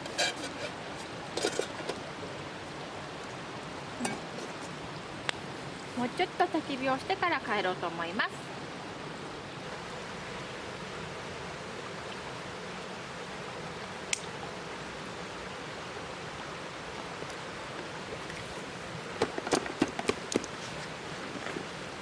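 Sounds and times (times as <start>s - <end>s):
steady rushing hiss: 0.0s - 22.0s
firewood popping: 19.2s - 20.6s.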